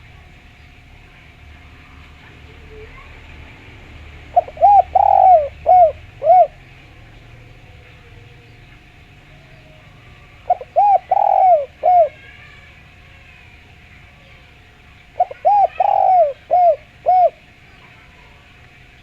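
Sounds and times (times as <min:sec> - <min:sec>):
dove cooing: 0:04.2 - 0:13.2, 0:15.1 - 0:18.5.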